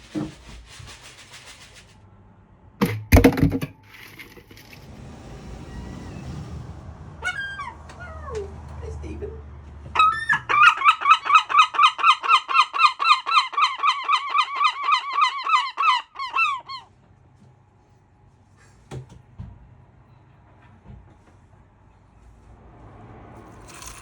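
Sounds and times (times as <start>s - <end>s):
seagull yelping calls: 10.0s - 16.9s.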